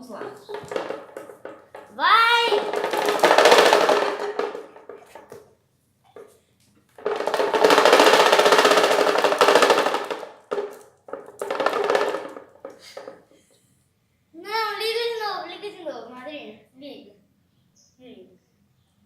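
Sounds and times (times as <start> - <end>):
electric fan rattling and knocking: 0.0 - 5.5, 6.9 - 13.3.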